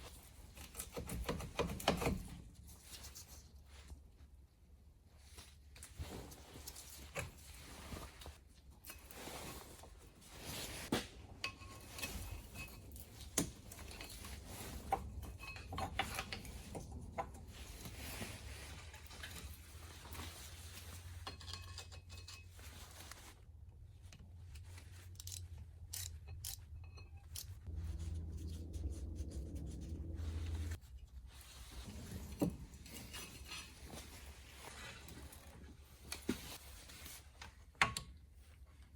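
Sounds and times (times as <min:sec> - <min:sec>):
low steady hum: 0:11.3 - 0:35.4.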